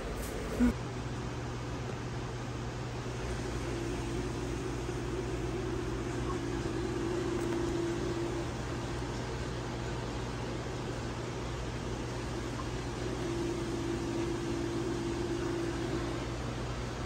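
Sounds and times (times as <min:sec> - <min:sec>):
low mechanical hum: 0:00.0 - 0:17.0
faint steady tone: 0:03.2 - 0:10.3, 0:11.8 - 0:17.0.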